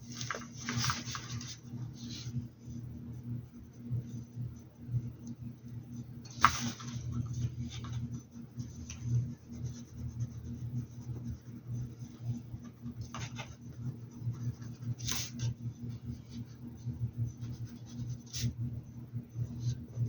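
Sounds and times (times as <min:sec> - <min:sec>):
low steady hum: 0:00.0 - 0:20.0
paintbrush scratching on a hat: 0:07.4 - 0:18.6.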